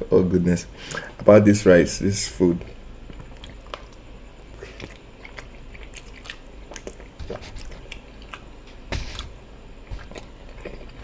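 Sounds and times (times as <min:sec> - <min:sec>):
person chewing food: 0:02.7 - 0:11.0.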